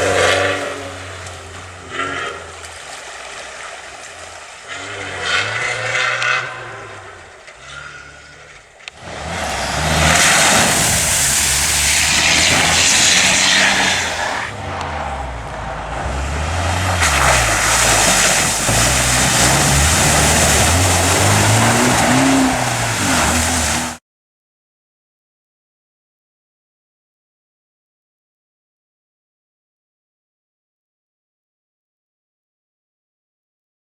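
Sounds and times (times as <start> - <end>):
car engine revving: 0.0 - 3.7, 4.5 - 24.0
tyre and road noise: 0.0 - 24.0.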